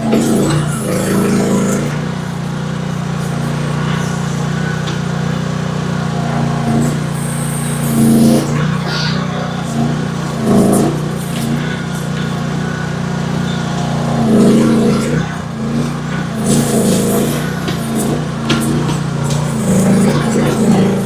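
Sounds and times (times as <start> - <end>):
excavator engine running: 0.0 - 21.0.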